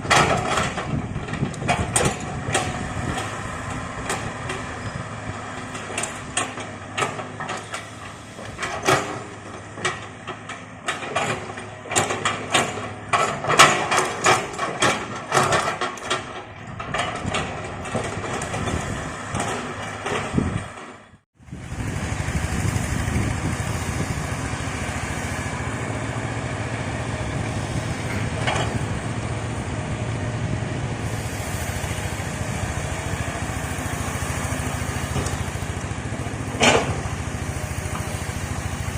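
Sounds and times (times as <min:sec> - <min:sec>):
excavator engine running: 0:00.0 - 0:38.9
metal clanks and knocks: 0:08.5 - 0:20.9, 0:27.9 - 0:29.2, 0:36.5 - 0:37.2.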